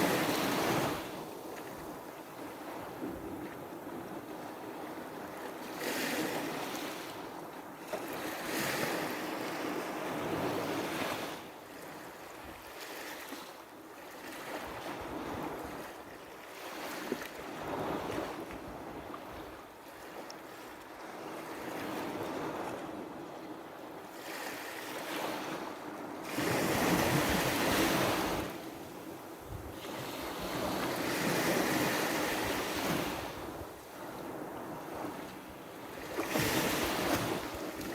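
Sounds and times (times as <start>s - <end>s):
wind on microphone: 25.2s - 37.9s.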